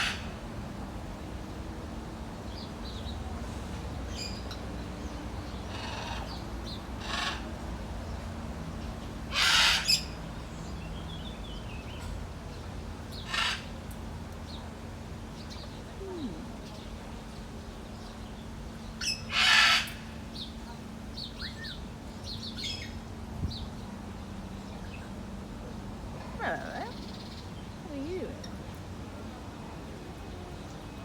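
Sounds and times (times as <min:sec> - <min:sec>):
parrot squawking: 0:26.2 - 0:27.2.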